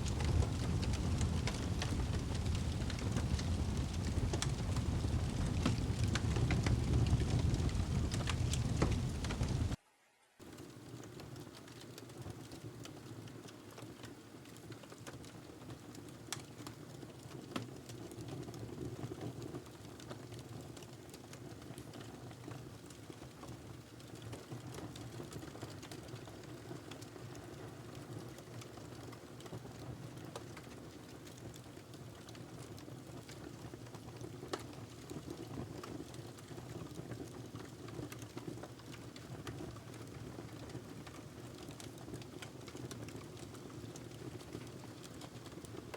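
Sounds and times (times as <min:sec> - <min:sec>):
fire crackling and popping: 0:00.0 - 0:09.8, 0:10.4 - 0:45.9
flames rushing: 0:00.0 - 0:09.8, 0:21.2 - 0:45.9.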